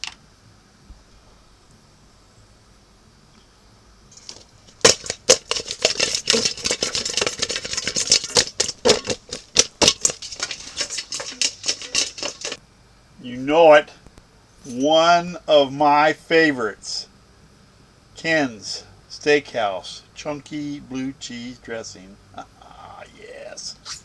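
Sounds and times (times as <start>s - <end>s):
rapid rattling and clattering: 4.1s - 12.6s.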